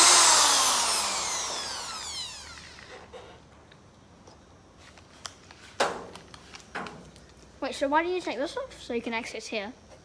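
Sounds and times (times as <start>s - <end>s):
power drill motor winding down: 0.0s - 3.1s.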